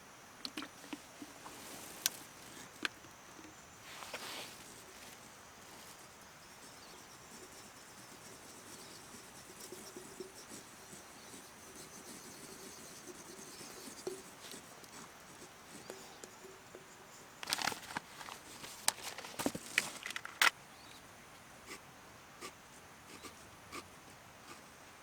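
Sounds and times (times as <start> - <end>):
high insect drone: 0.0 - 21.0
brief rustle: 17.4 - 20.6
sharp clicks: 17.4 - 20.6.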